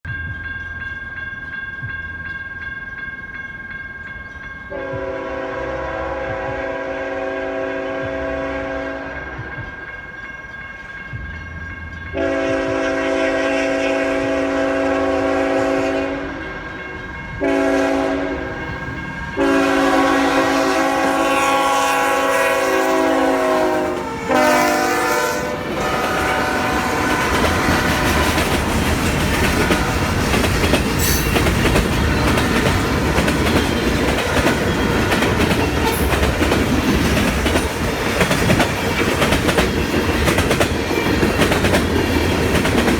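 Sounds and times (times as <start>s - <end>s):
freight cars rumbling on rails: 0.1s - 42.9s
locomotive air horn blasts: 4.7s - 9.5s, 12.1s - 16.7s, 17.4s - 28.7s.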